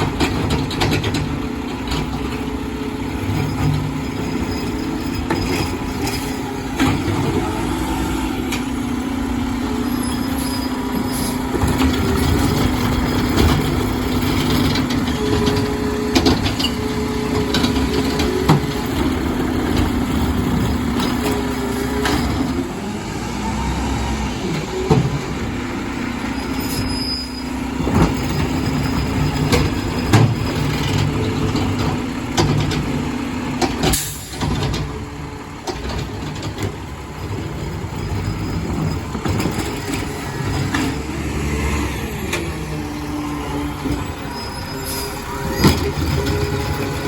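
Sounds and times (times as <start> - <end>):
knocks and clanks: 0.0 - 7.7, 11.4 - 22.7, 27.8 - 41.1, 45.4 - 47.0
diesel garbage truck running: 0.0 - 47.0
air brake hiss: 33.9 - 34.4.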